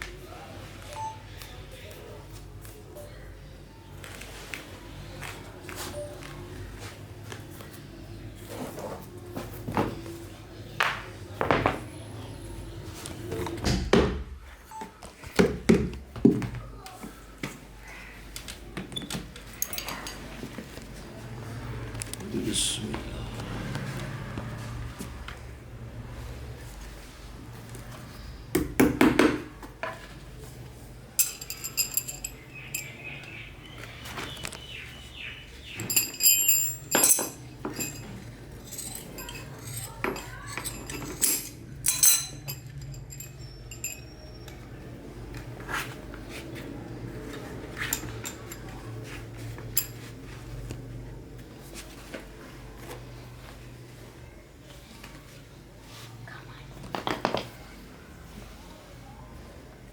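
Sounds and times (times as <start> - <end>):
metal tools clinking: 19.5 - 20.4, 31.2 - 33.3, 35.6 - 44.6, 47.8 - 48.7, 49.6 - 50.1.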